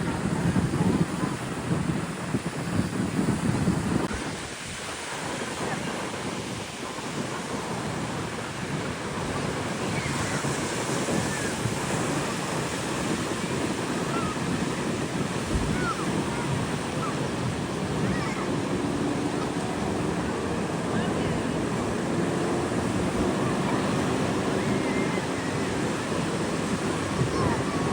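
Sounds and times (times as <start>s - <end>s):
ocean surf: 0.0s - 27.9s
wind on microphone: 0.0s - 27.9s
faint distant voices: 4.0s - 27.9s.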